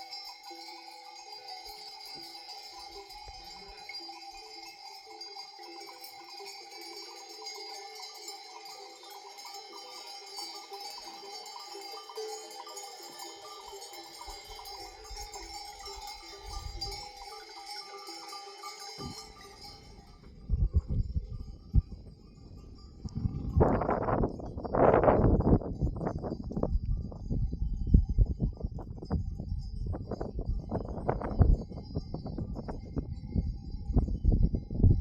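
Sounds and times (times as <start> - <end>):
animal bells jangling: 0.0 - 35.0.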